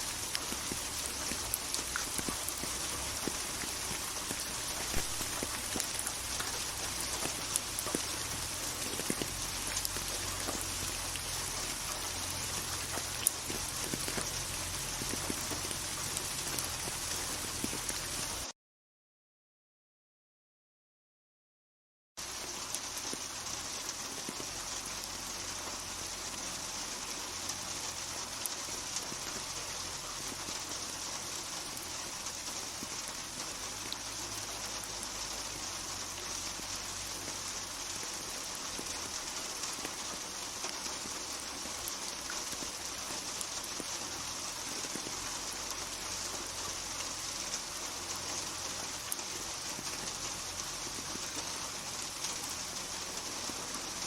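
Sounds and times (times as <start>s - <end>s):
rain falling steadily: 0.0s - 18.5s, 22.2s - 54.0s
raindrop taps: 0.2s - 18.4s.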